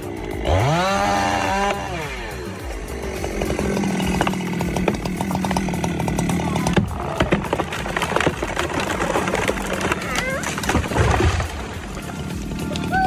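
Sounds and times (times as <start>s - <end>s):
chainsaw cutting: 0.0s - 12.9s
sharp clicks and cracks: 2.6s - 13.0s.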